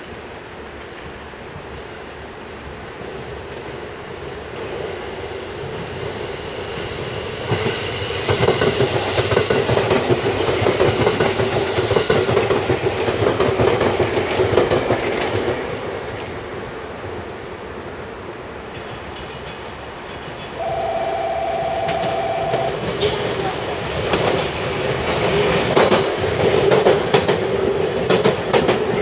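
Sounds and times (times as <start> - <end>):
electric train passing: 0.0 - 29.0
wheels clattering over rail joints: 22.9 - 29.0.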